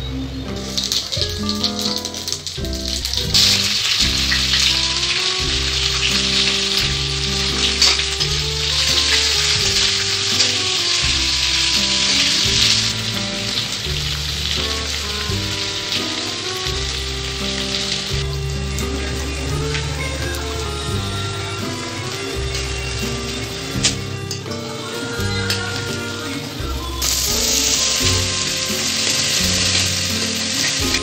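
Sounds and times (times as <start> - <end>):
background music of held notes: 0.0 - 31.0
onions sizzling in hot oil: 0.5 - 31.0.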